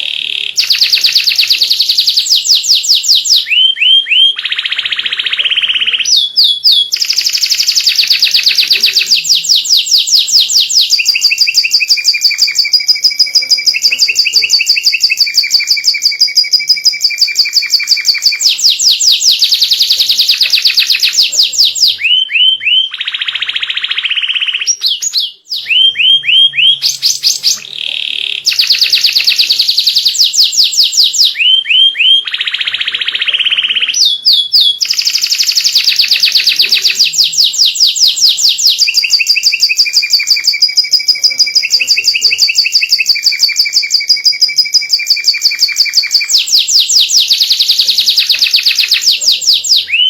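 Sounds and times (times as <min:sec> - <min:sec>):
canary singing trills: 0:00.0 - 0:50.0.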